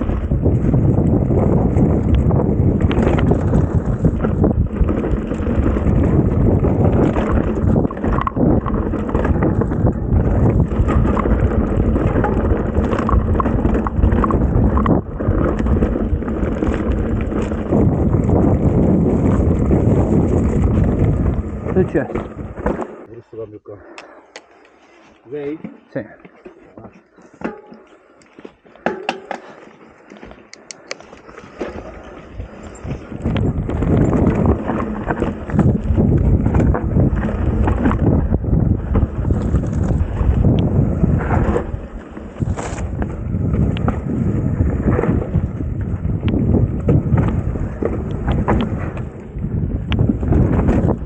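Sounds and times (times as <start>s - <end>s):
bike rattling and knocking: 0.0s - 23.0s, 28.8s - 51.0s
tyres rolling over rough trail: 0.0s - 23.4s, 24.4s - 51.0s
wind rushing over microphone: 0.0s - 25.2s, 30.5s - 51.0s.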